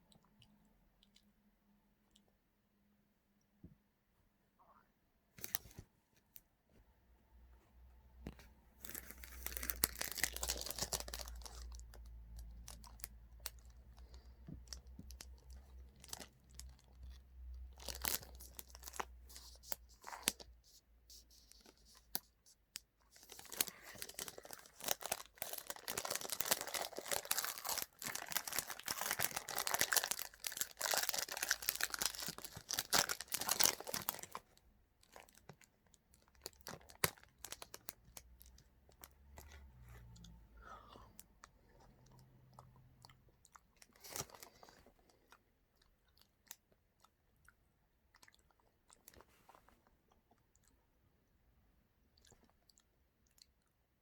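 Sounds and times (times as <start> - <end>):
snack wrapper tearing and crinkling: 8.8 - 22.4, 23.1 - 39.5, 43.8 - 44.8.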